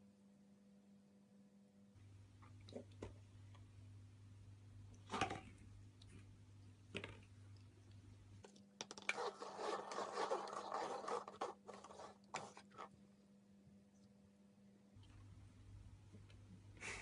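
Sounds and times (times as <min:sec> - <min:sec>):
faint low hum: 0:00.0 - 0:17.0
scratching and rustling on surface: 0:08.9 - 0:13.0.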